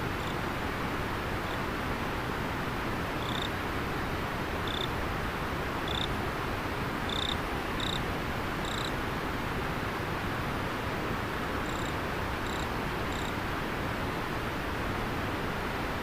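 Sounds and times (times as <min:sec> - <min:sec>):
insect chirping: 0:03.2 - 0:03.5, 0:04.6 - 0:04.9, 0:05.9 - 0:06.1, 0:07.1 - 0:08.0, 0:08.6 - 0:08.9, 0:11.6 - 0:13.3.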